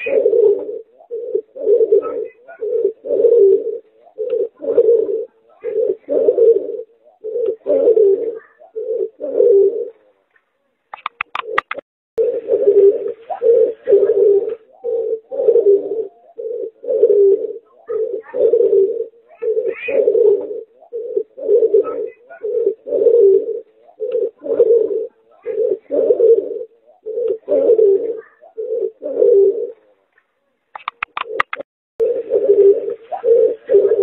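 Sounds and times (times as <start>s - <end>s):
pigeon cooing: 0.0s - 10.2s, 11.0s - 30.0s, 30.8s - 34.0s
sharp clicks: 10.9s - 11.8s, 30.7s - 31.6s.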